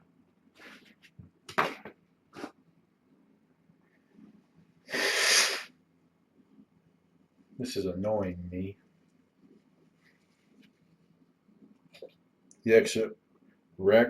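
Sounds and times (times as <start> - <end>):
person sneezing: 4.9 - 5.7.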